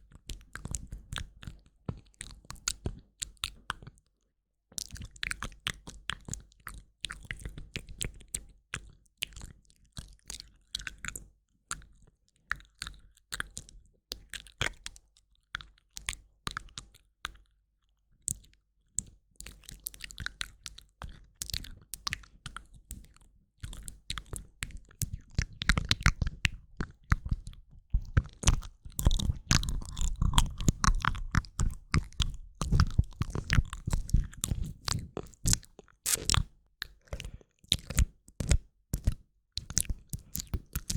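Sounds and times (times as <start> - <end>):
wet mouth clicks and smacks: 4.8 - 15.0, 18.3 - 40.9.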